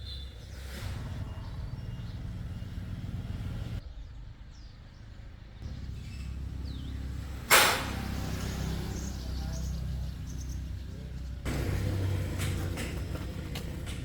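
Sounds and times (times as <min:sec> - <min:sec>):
vehicle engine running: 0:00.7 - 0:03.8, 0:05.6 - 0:14.0
sharp metallic hit: 0:07.5 - 0:08.2.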